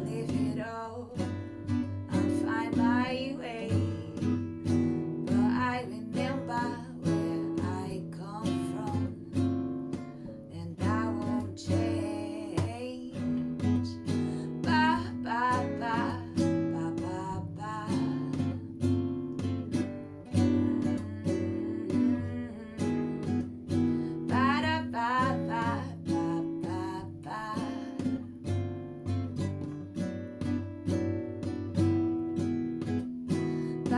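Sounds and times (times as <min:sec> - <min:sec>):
person singing: 0:00.0 - 0:04.5, 0:05.3 - 0:09.4, 0:10.4 - 0:18.8, 0:20.3 - 0:23.4, 0:24.0 - 0:28.2
acoustic guitar strumming: 0:00.0 - 0:33.9.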